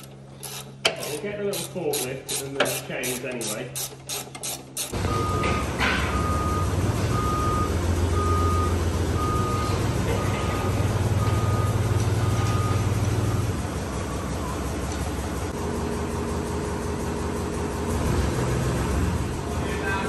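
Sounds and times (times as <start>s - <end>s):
forklift engine running: 0.0s - 20.0s
reversing alarm beeping: 5.0s - 13.5s.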